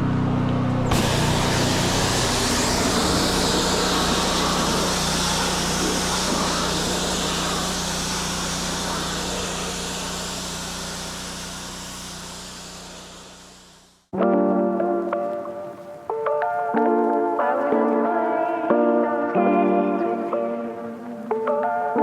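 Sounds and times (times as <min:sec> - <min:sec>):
pressure washer hum: 0:00.4 - 0:14.1
high-pressure water spray hiss: 0:00.9 - 0:14.1.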